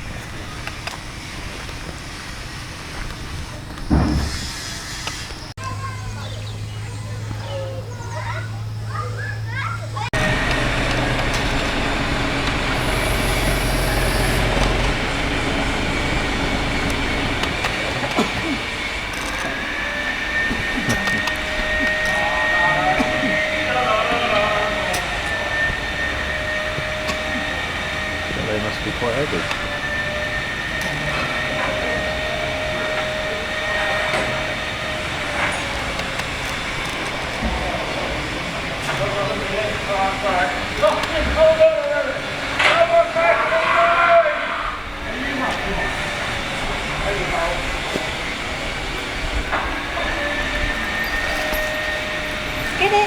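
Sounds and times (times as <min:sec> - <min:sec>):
train rumbling on track: 0:00.0 - 0:53.0
thin high squeal: 0:50.0 - 0:53.0.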